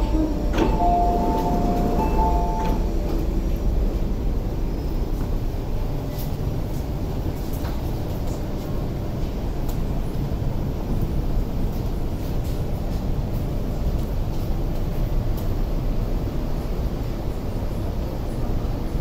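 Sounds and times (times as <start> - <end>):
two-note electronic tone: 0.0 - 2.9
electric train rumbling: 0.0 - 19.0.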